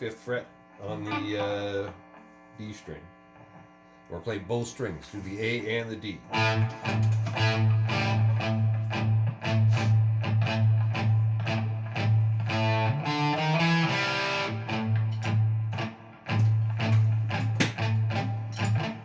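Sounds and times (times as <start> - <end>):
guitar riff over drone: 0.8 - 2.2, 6.2 - 19.0.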